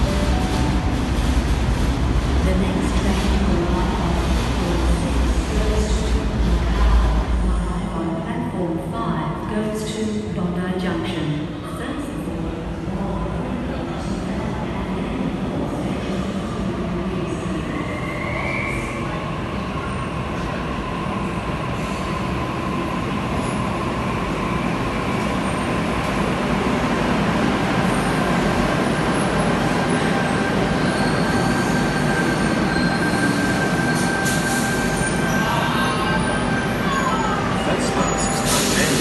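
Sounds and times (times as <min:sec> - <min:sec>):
electric train rumble: 0:00.0 - 0:08.3.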